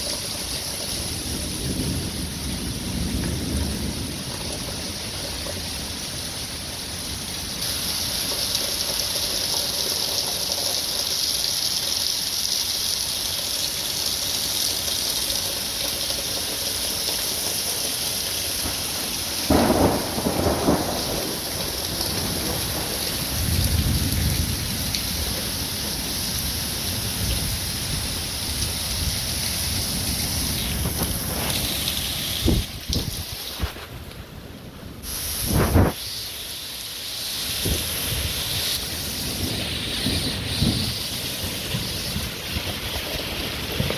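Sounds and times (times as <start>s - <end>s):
heavy rain hissing: 0.0s - 43.9s
low rumble of thunder: 1.0s - 5.6s, 18.6s - 35.0s, 39.1s - 43.9s
loud thunderclap: 18.6s - 26.0s, 29.9s - 33.9s, 39.2s - 43.9s.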